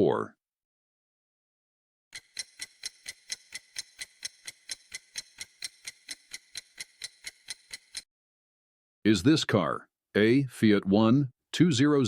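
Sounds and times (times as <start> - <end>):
clock ticking: 2.2 - 8.0.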